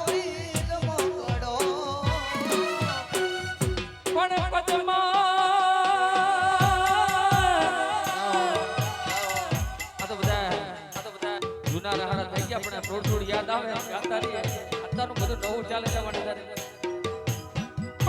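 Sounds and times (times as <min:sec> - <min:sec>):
deep drum beat: 0:00.0 - 0:05.0, 0:06.6 - 0:08.0, 0:08.9 - 0:10.8
rattling percussion: 0:00.0 - 0:05.2, 0:05.9 - 0:18.0.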